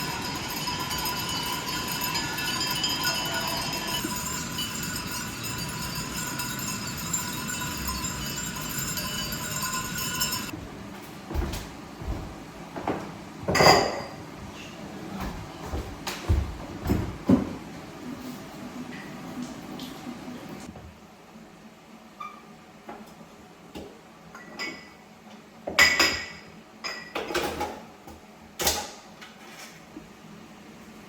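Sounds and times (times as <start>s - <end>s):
knocks and clinks: 0.0s - 10.5s
steady high tones: 0.0s - 10.5s.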